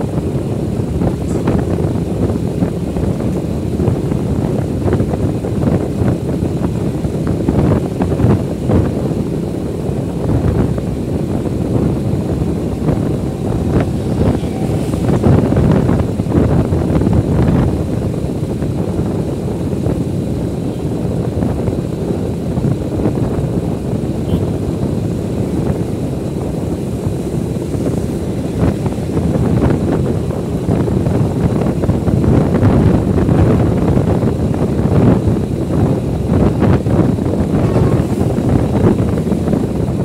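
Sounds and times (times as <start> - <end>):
vehicle running noise: 0.0 - 40.0
wind buffeting microphone: 0.0 - 40.0.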